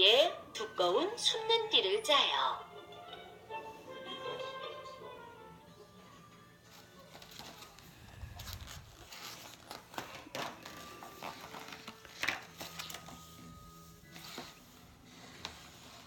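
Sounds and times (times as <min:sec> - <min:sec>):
rustling and crinkling: 0:06.6 - 0:16.0.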